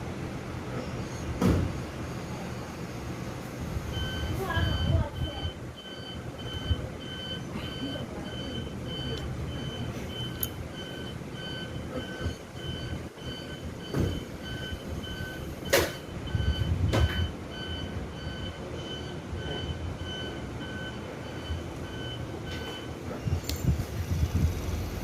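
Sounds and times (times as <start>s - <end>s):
electronic beeper beeping: 3.9s - 23.4s.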